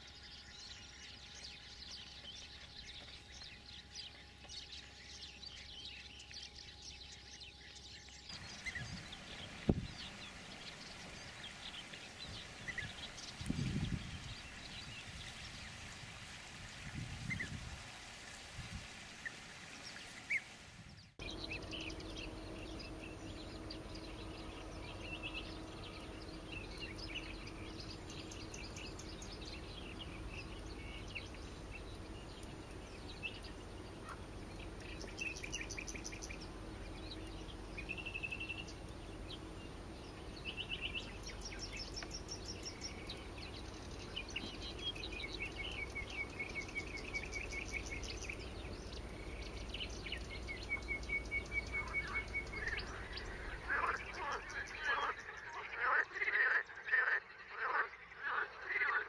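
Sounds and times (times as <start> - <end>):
small birds chirping and trilling: 0.0 - 59.0
faint low hum: 20.9 - 59.0.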